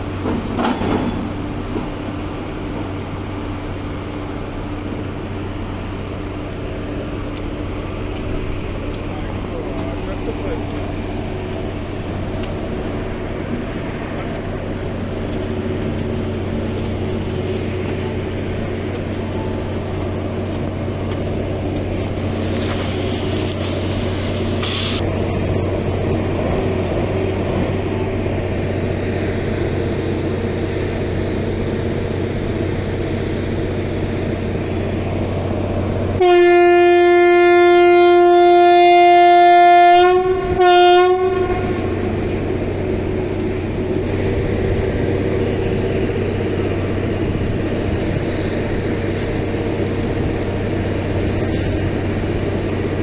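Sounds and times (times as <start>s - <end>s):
train rumbling past: 0.0s - 53.0s
train horn blasts: 36.2s - 42.4s.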